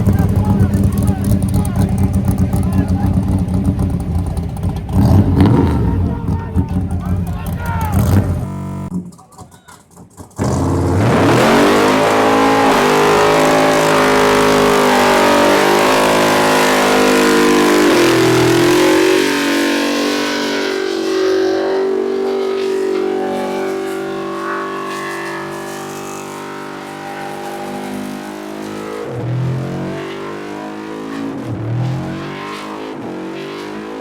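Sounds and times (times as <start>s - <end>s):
car engine revving hard: 0.0s - 8.9s, 10.4s - 34.0s
spinning tyres hissing: 10.0s - 34.0s.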